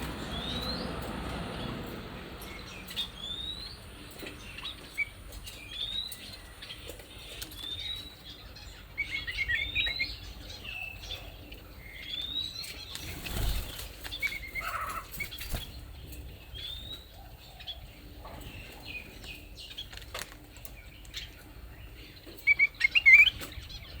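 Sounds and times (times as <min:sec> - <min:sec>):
songbirds chirping: 0:00.0 - 0:24.0
wings fluttering: 0:12.7 - 0:16.2.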